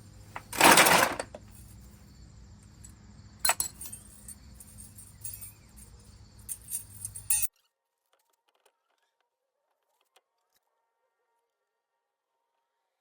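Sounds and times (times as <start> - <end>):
metal tools clinking and knocking: 0.1 - 2.0, 2.6 - 7.5
loud metal clunk: 0.4 - 1.4.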